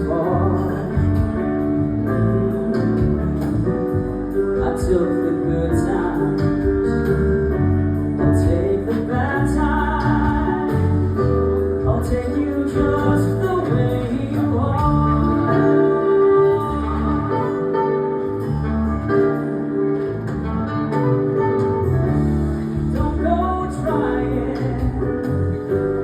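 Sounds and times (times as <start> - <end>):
band music with singer: 0.0 - 26.0
steady drum beat: 0.2 - 7.1, 8.4 - 15.5, 21.4 - 26.0.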